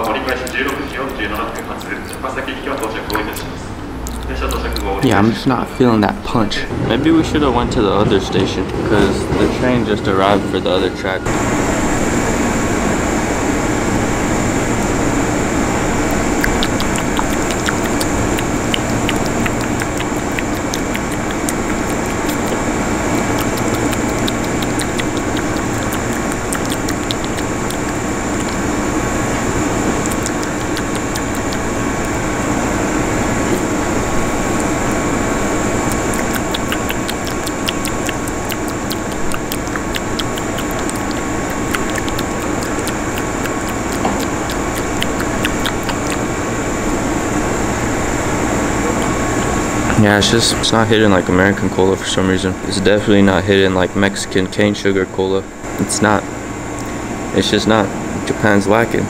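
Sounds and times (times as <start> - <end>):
light high ticking: 0.0 - 5.2, 16.0 - 35.0, 35.7 - 46.4
train machinery humming: 0.0 - 59.0.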